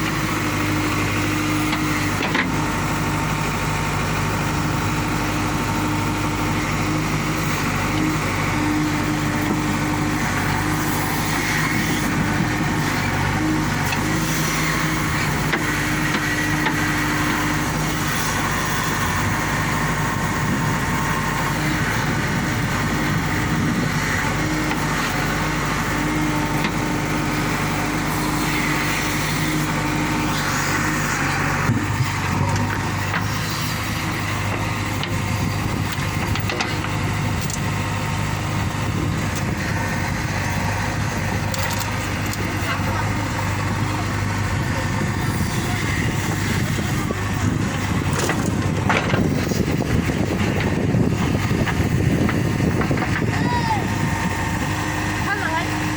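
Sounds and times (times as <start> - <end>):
heavy machinery diesel engine: 0.0 - 55.9.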